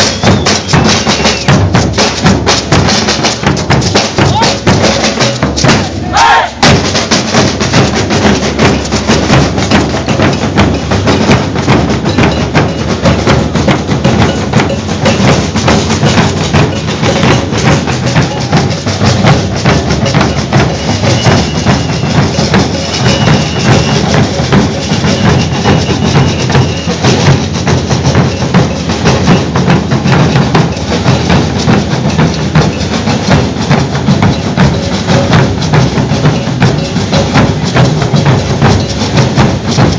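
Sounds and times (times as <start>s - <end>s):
deep drums: 0.0s - 39.9s
snare drums: 0.0s - 39.9s
shakers: 7.6s - 39.9s
struck metal bell: 12.0s - 39.9s.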